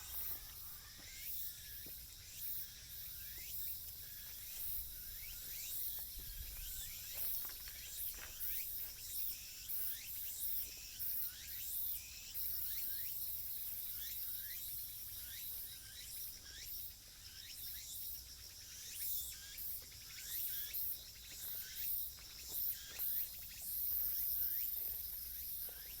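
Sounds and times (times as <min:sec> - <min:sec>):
high-pitched insect buzzing: 0:00.0 - 0:01.8
short falling insect chirps: 0:00.0 - 0:01.8.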